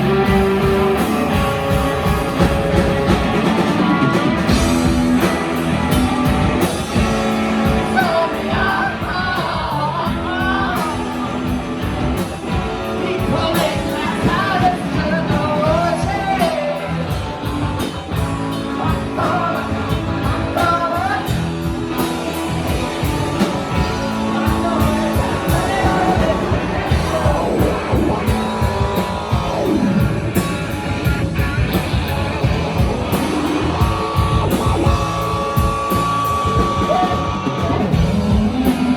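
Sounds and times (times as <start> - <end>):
drum kit: 0.0 - 38.9
electric guitars: 0.0 - 38.9
person singing: 3.3 - 17.2, 23.0 - 30.0.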